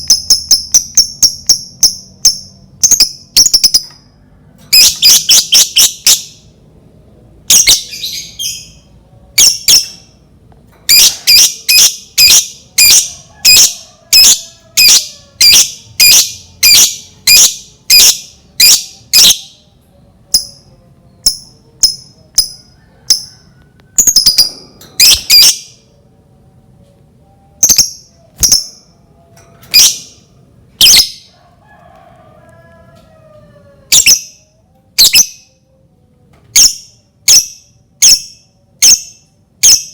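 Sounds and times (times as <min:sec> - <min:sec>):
lovebird shrill calls: 0:24.0 - 0:25.6.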